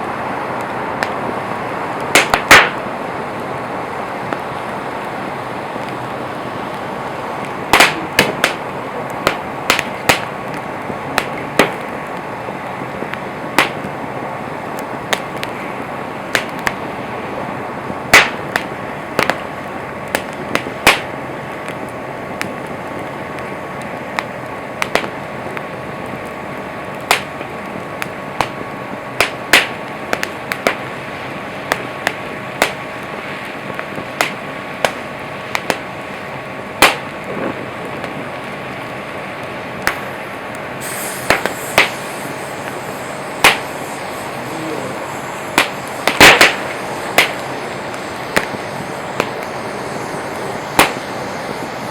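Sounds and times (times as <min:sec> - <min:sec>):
campfire crackling: 0:00.0 - 0:51.9.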